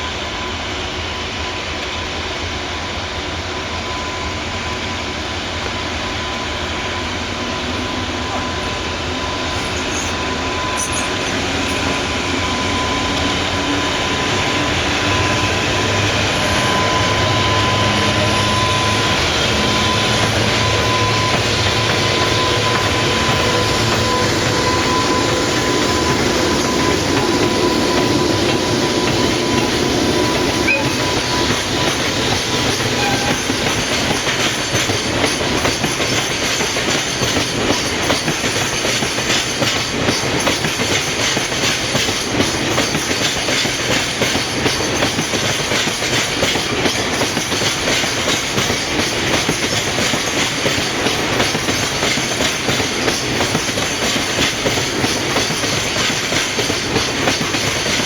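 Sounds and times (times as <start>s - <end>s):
freight train wheels on rail: 0.0s - 58.0s
thin high tone: 7.9s - 12.8s, 26.0s - 33.7s.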